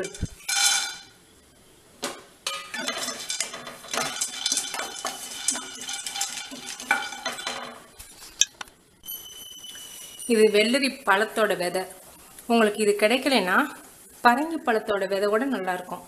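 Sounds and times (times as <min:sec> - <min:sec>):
nuts rattling in a pan: 0:00.0 - 0:01.1, 0:02.5 - 0:08.0
spoon scraping a pan: 0:00.0 - 0:01.1, 0:02.5 - 0:08.5, 0:09.1 - 0:10.8.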